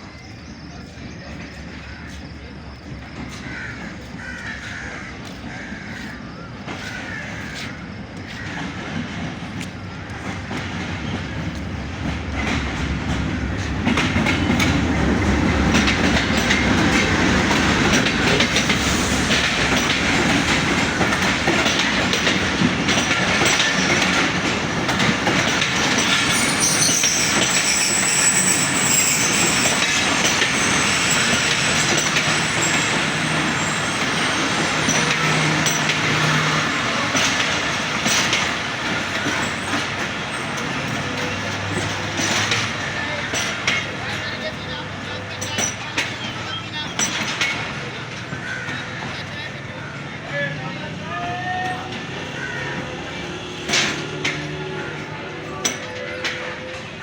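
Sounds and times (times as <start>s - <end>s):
train wheels clattering: 0.9s - 57.0s
wheels and brakes squealing: 13.3s - 49.3s, 51.1s - 57.0s.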